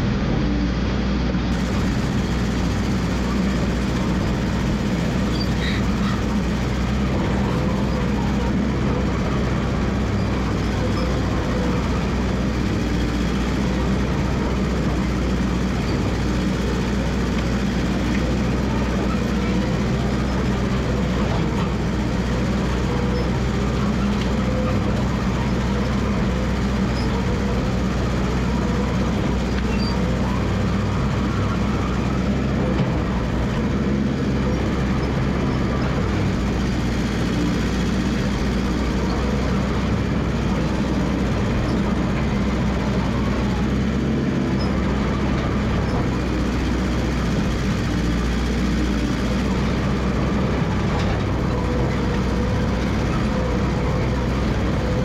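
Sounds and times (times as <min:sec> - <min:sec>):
dozer engine running: 0:00.0 - 0:55.0.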